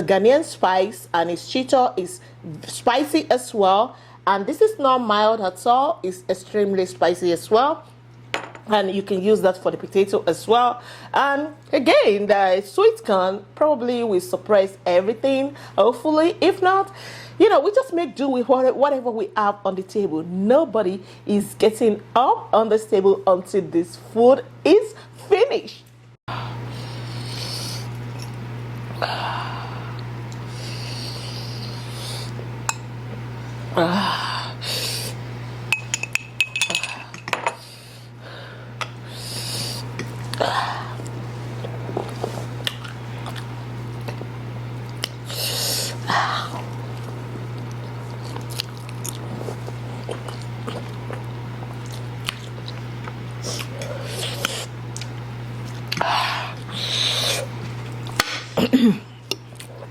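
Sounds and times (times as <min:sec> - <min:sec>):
eating noodles: 0:44.9 - 0:57.6.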